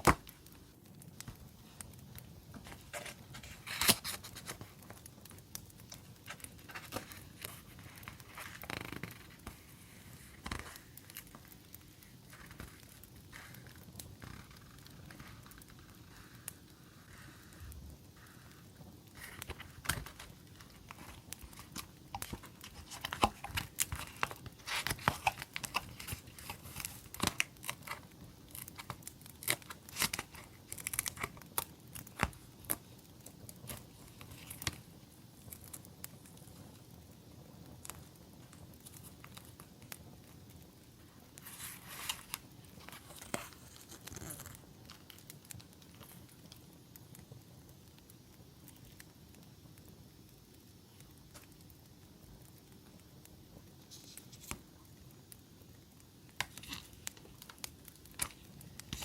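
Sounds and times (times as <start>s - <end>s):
paper and packaging crinkling: 1.2s - 16.4s, 17.1s - 36.4s, 41.3s - 46.2s, 53.9s - 54.7s, 56.3s - 59.0s.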